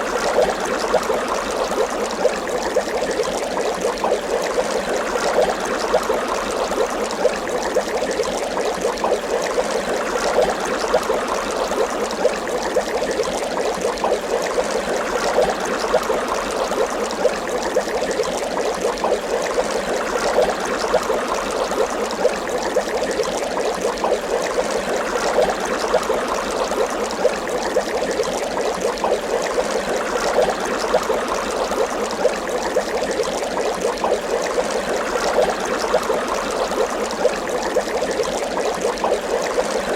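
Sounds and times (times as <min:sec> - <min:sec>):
water bubbling: 0:00.0 - 0:39.9.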